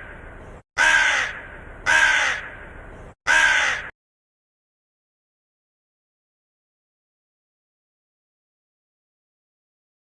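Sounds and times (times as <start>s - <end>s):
crow cawing: 0.8s - 2.7s, 3.3s - 3.9s.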